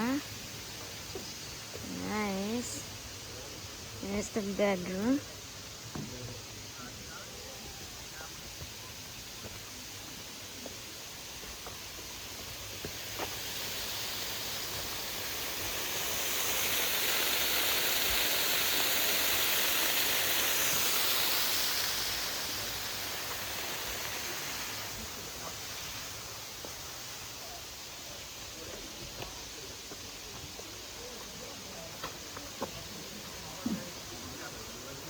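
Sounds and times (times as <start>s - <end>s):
waterfall rushing: 12.3s - 26.4s.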